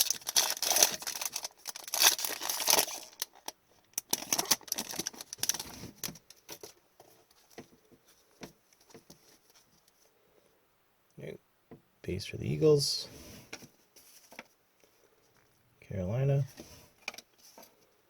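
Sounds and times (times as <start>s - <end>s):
card pack wrapper crinkling: 0.0s - 6.8s.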